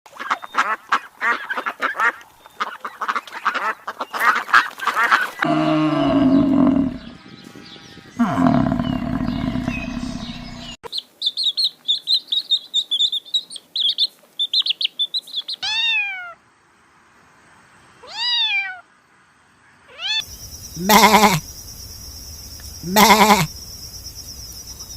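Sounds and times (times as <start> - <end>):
falling pitched animal calls: 5.4 - 7.3, 8.1 - 10.8, 20.8 - 21.5, 22.8 - 23.5
loud low-pitched animal calls: 5.4 - 7.3, 8.2 - 10.8, 20.8 - 21.5, 22.8 - 23.6
rapid repeated animal calls: 19.9 - 21.7, 22.6 - 23.8
high chirps: 20.2 - 24.9.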